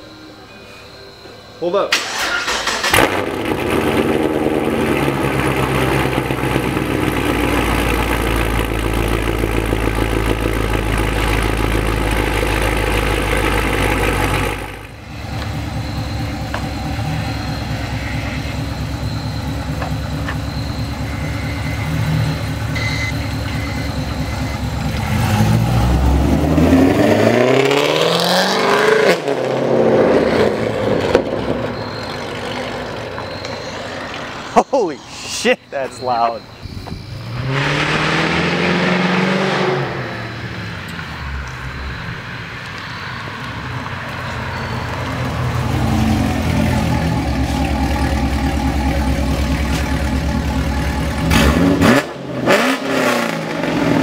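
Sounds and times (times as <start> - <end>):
car engine idling: 2.0 - 27.0, 40.1 - 52.6
car engine revving and accelerating: 24.8 - 31.3, 37.1 - 41.2, 44.1 - 54.0.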